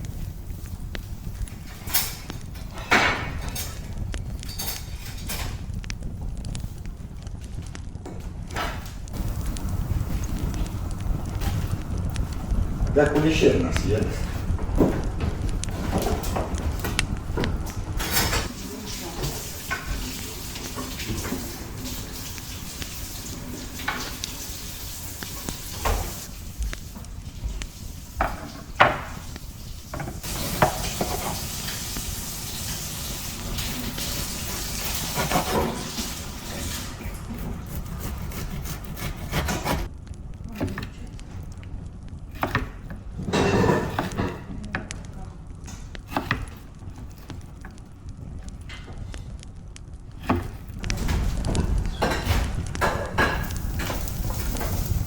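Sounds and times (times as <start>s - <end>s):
low background rumble: 0.0s - 18.5s
dishes and utensils clattering: 1.6s - 5.7s, 14.2s - 22.3s, 43.2s - 44.6s, 51.0s - 54.8s
sizzling hiss: 8.4s - 39.9s, 51.8s - 55.0s.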